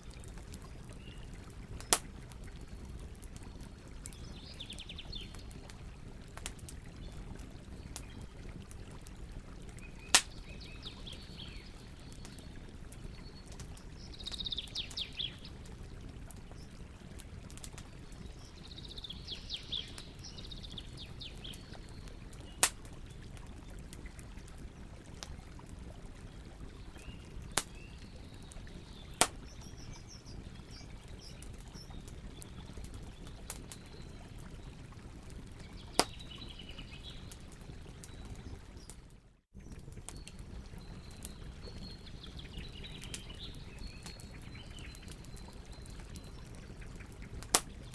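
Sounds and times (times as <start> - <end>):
campfire crackling and popping: 0.0 - 47.9
birds chirping: 9.8 - 15.6, 18.1 - 22.6.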